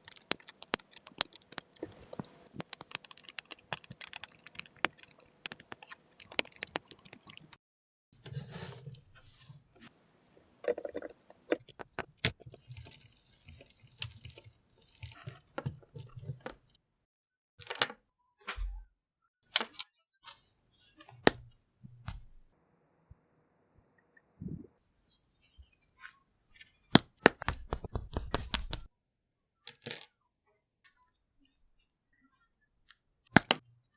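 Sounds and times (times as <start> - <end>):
plastic bricks clicking together: 0.0 - 7.5.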